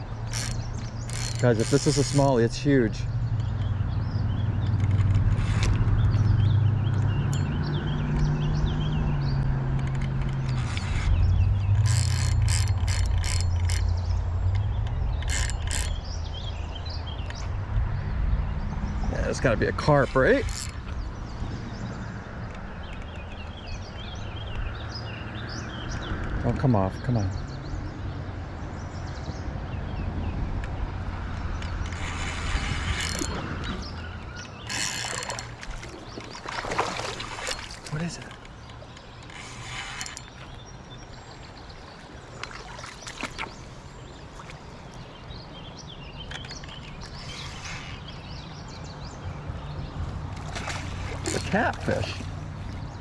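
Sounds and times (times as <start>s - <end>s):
fishing reel drag clicking: 0.2s - 2.7s, 9.9s - 16.1s, 19.8s - 21.0s, 31.7s - 35.8s, 37.4s - 40.6s, 46.3s - 48.2s.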